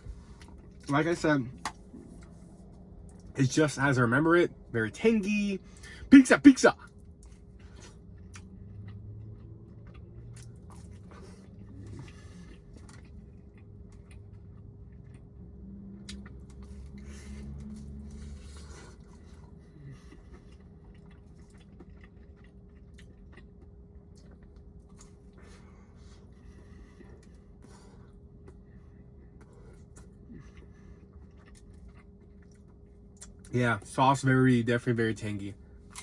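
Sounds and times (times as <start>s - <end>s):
person chewing food: 0.0s - 0.9s, 6.8s - 33.5s, 35.8s - 36.0s.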